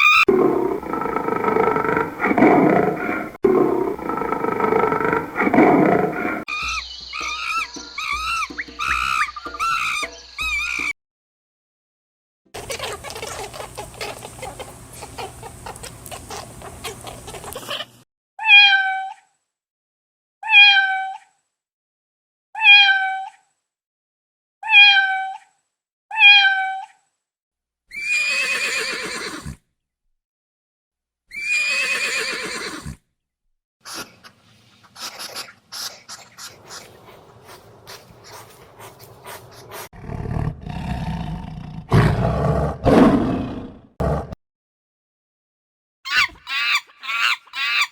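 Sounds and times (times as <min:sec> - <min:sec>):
harsh animal calls: 0:00.0 - 0:10.9, 0:12.6 - 0:18.8, 0:35.0 - 0:44.3, 0:46.1 - 0:47.9
low growling roar: 0:00.3 - 0:06.5, 0:37.9 - 0:44.4
cat meows: 0:18.4 - 0:19.2, 0:20.4 - 0:21.3, 0:22.6 - 0:23.4, 0:24.6 - 0:25.5, 0:26.1 - 0:27.0.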